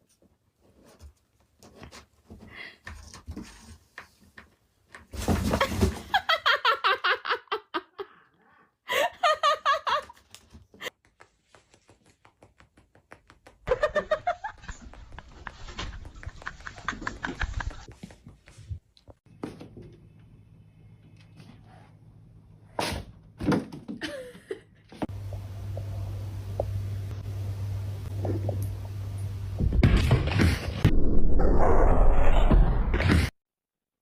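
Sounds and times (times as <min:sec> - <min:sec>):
person laughing hard: 0:06.0 - 0:08.2, 0:08.9 - 0:10.2, 0:13.7 - 0:17.9, 0:24.0 - 0:24.7.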